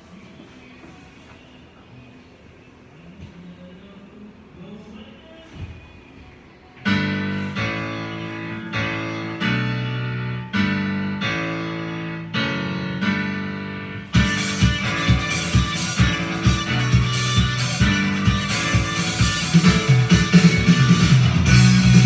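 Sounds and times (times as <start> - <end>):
piano chords: 6.8 - 22.0
band with guitar and drums: 14.1 - 22.0.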